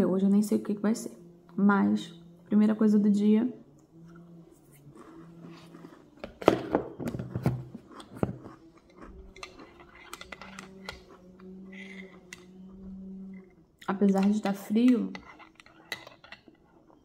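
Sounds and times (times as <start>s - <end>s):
chewing and crunching biscuit: 3.9s - 14.5s.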